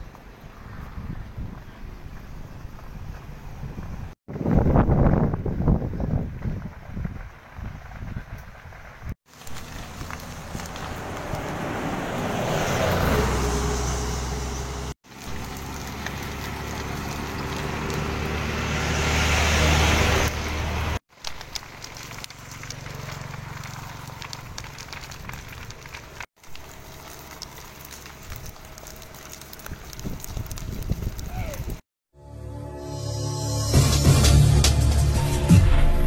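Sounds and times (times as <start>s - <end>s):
road vehicle noise: 0.0s - 36.0s.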